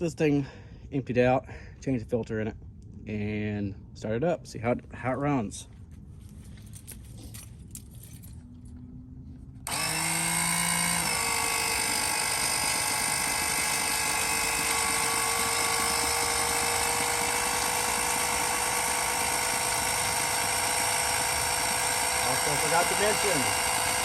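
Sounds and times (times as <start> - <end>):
electric pump motor whine: 9.6 - 24.0.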